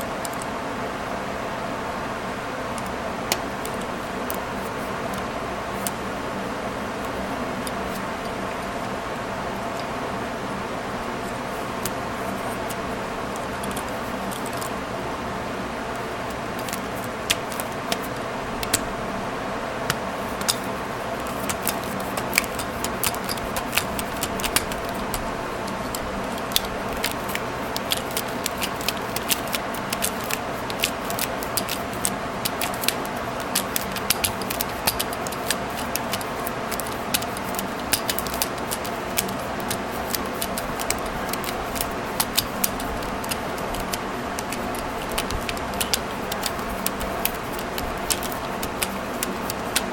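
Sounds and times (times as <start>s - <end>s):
steady background hum: 0.0s - 49.9s
staple remover clicking and rattling: 21.2s - 49.9s.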